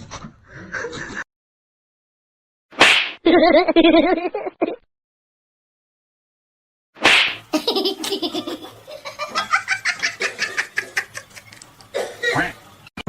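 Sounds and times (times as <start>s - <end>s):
person laughing: 3.3s - 4.8s, 7.5s - 11.6s.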